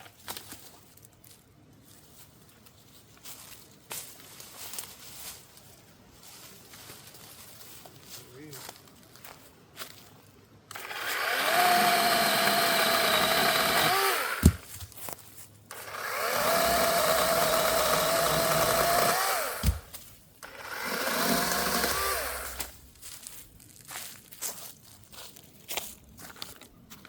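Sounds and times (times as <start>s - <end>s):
cordless chainsaw whining: 10.7s - 14.6s, 15.7s - 22.7s
sharp thump: 14.4s - 14.7s, 19.6s - 20.0s.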